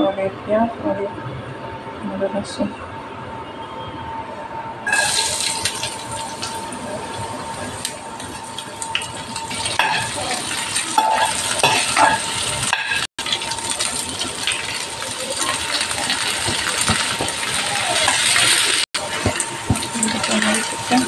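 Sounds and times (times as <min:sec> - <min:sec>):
vegetables sizzling in oil: 0:04.9 - 0:21.0
steel spoon scraping a pan: 0:09.4 - 0:13.1.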